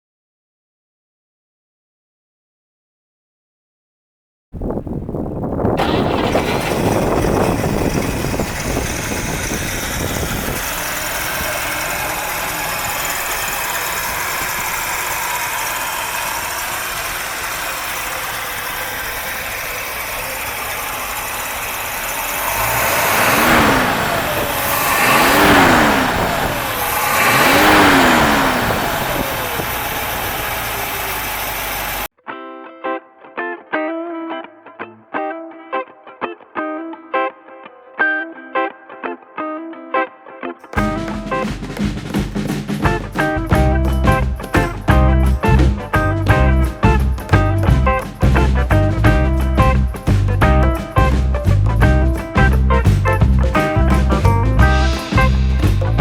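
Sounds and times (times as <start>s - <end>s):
car engine starting and idling: 5.3s - 32.1s, 40.8s - 56.0s
engine revving: 5.8s - 32.1s, 40.8s - 56.0s.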